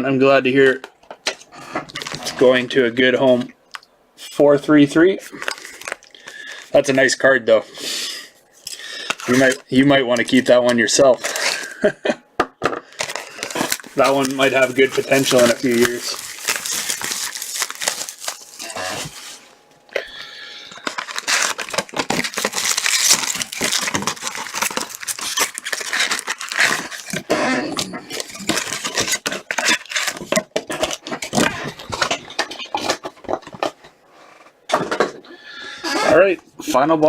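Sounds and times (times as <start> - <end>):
plastic packaging crinkling and tearing: 1.3 - 2.5, 5.2 - 7.0, 8.5 - 11.9, 12.8 - 33.8.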